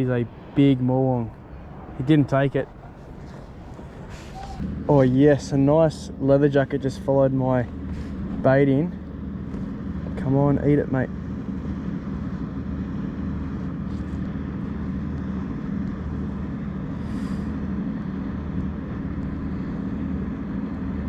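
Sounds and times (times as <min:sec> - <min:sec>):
low engine drone: 0:00.0 - 0:21.0.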